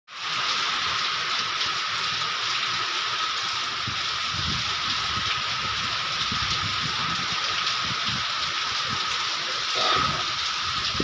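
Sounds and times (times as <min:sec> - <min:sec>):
heavy rain falling: 0:00.1 - 0:11.0
wind rumbling on microphone: 0:03.7 - 0:11.0.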